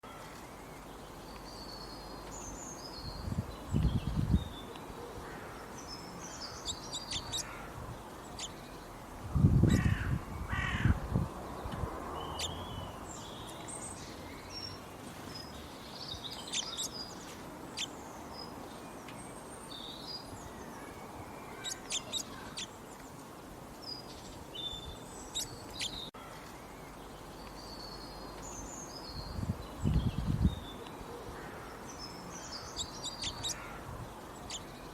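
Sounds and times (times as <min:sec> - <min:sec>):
birds chirping and calling: 0:00.2 - 0:09.0, 0:09.6 - 0:11.0, 0:11.6 - 0:23.2, 0:23.8 - 0:34.9.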